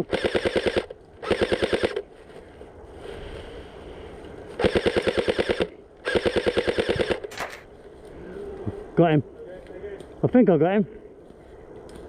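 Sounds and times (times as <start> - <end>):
airsoft rifle firing bursts: 0.0 - 2.0, 4.6 - 7.6.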